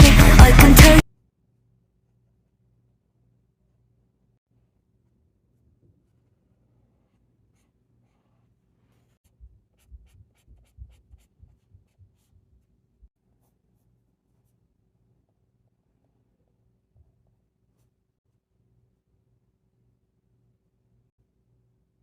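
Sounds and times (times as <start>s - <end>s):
marker scratching on paper: 6.8s - 12.6s.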